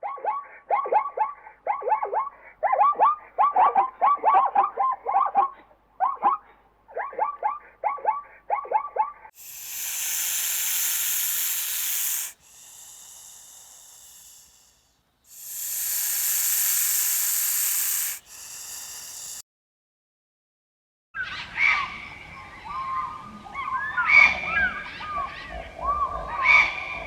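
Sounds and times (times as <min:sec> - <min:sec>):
animal hissing: 0:09.4 - 0:19.4
short bird-like calls: 0:09.4 - 0:19.4.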